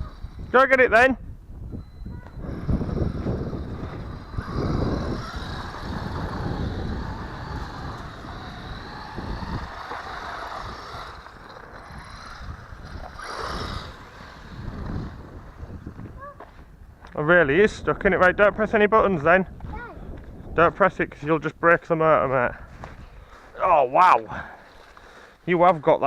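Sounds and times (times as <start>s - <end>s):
electric toy car motor whining: 0.0s - 0.6s, 2.3s - 16.1s
wind rumble on microphone: 0.0s - 21.3s.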